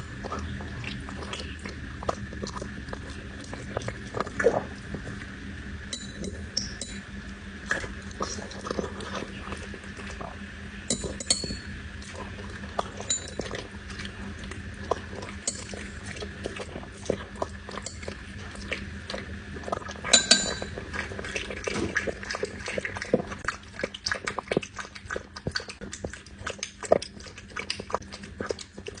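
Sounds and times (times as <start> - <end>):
dog chewing: 0.0 - 29.0
clinks against dish: 6.0 - 7.0, 10.9 - 11.6, 20.1 - 20.7.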